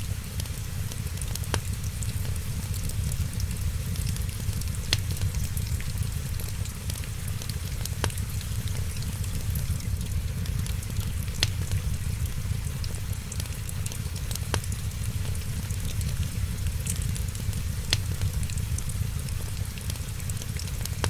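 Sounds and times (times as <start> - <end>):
steady low rumble: 0.0 - 21.0
wood fire crackling: 0.0 - 21.0
sharp fire pops: 1.5 - 6.4, 14.3 - 19.6.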